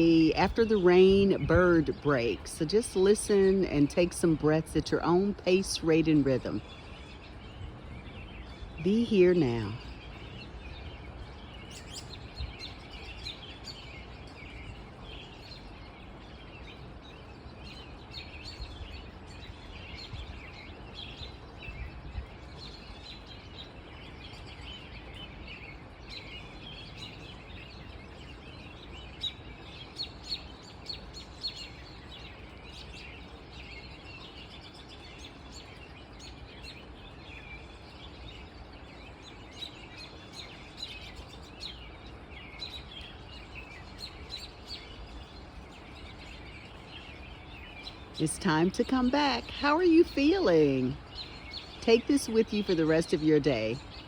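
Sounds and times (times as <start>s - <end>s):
small birds chirping and singing: 0.0s - 54.0s.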